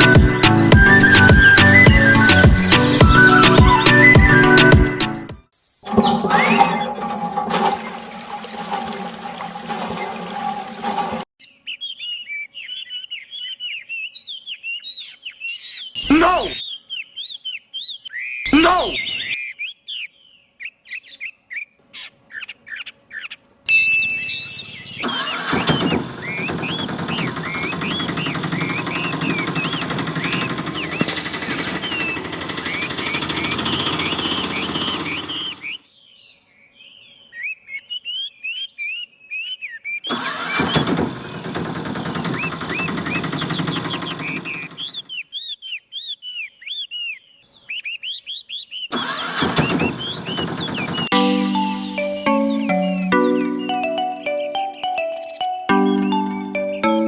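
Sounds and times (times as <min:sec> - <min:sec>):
birds chirping: 0:00.0 - 0:57.0
small motor running: 0:25.0 - 0:35.8, 0:40.1 - 0:45.0, 0:49.0 - 0:51.1.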